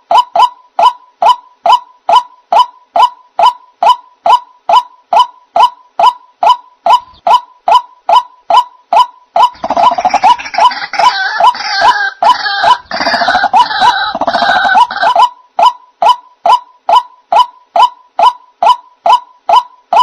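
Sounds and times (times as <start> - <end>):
sharp repeated bird call: 0.0 - 20.0
harsh chorus of bird calls: 4.7 - 20.0.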